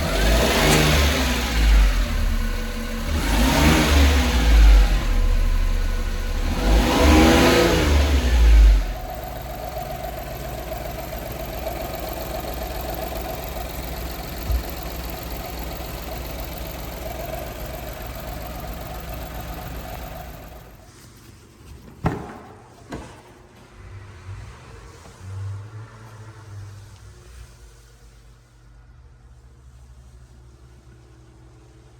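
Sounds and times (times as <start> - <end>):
truck engine revving and idling: 0.0 - 20.8.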